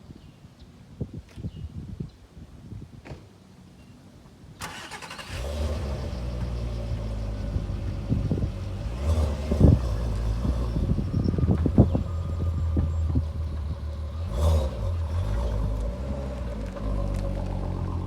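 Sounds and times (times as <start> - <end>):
car engine starting and idling: 4.6 - 18.0.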